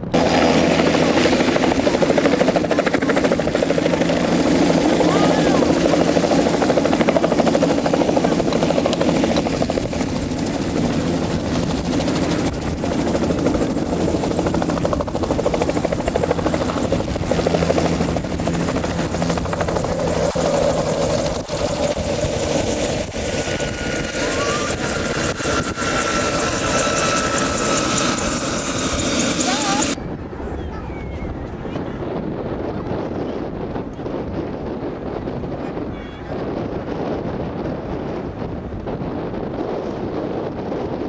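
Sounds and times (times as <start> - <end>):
high steady whine: 0.0 - 30.0
helicopter rotor beating: 0.0 - 30.2.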